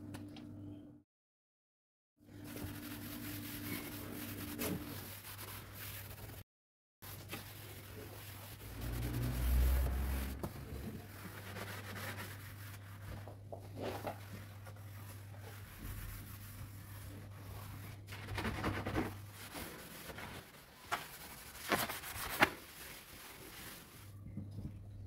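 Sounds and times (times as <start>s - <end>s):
rubbing and scraping: 7.0s - 24.2s.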